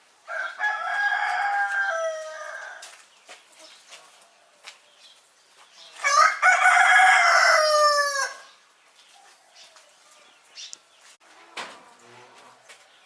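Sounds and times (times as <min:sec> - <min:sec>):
rooster crowing: 0:00.3 - 0:02.9, 0:06.0 - 0:08.5.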